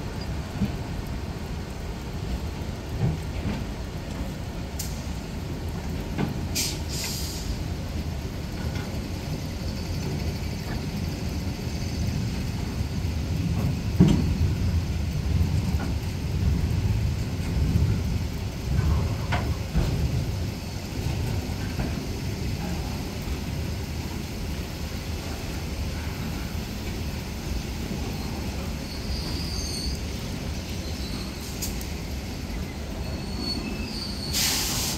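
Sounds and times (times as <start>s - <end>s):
heavy rain: 0.0s - 34.9s
train clanks and knocks: 0.0s - 34.9s
train wheels rumbling on rail: 0.0s - 34.9s
hissing bursts: 33.9s - 34.9s.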